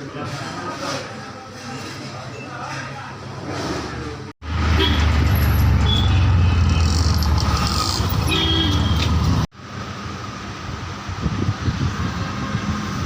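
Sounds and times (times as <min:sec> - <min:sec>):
vehicle rumbling: 0:04.4 - 0:13.0.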